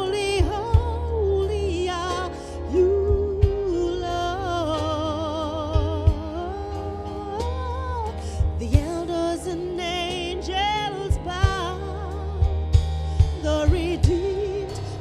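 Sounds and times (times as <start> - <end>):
band accompaniment with low bass: 0.0 - 15.0
solo singer with vibrato: 0.0 - 15.0
drum hits: 12.4 - 15.0.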